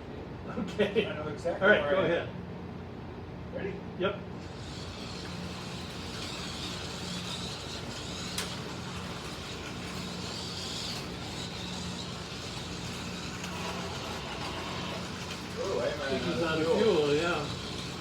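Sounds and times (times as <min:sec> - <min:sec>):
slot car motors whirring: 0:04.4 - 0:18.0.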